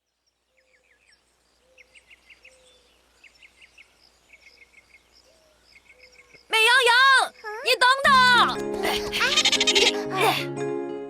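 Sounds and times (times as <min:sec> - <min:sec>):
faint birds chirping: 0:00.0 - 0:10.4.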